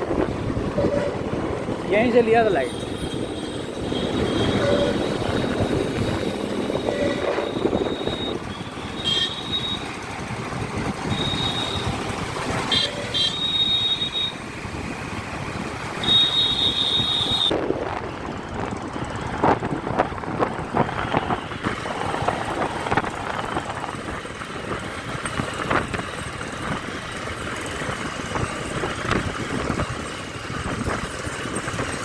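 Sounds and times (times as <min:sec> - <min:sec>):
wind noise: 0:00.0 - 0:13.1, 0:16.6 - 0:32.0
traffic noise: 0:00.0 - 0:32.0
high-pitched horn beeps: 0:02.8 - 0:09.9.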